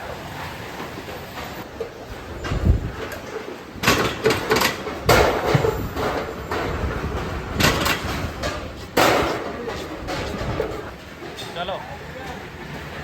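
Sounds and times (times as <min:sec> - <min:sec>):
sharp metal clanks and knocks: 0:01.8 - 0:11.7.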